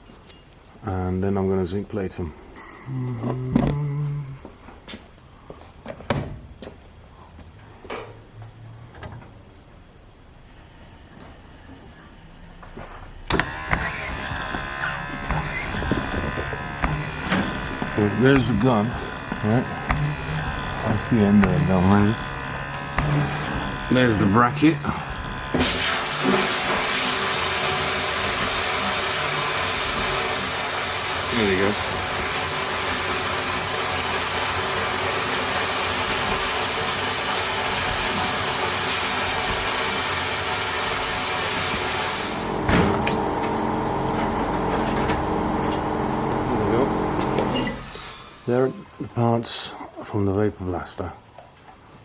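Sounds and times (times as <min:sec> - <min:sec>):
machine hum with tones: 0:10.4 - 0:49.1
machine hiss: 0:13.3 - 0:42.8
blast gun spraying hiss: 0:24.8 - 0:31.6.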